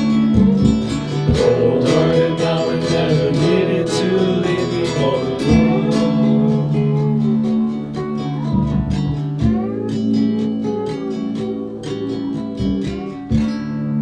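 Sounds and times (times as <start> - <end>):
rock guitar playing: 0.0 - 14.0
drums with steady beat: 0.4 - 2.6.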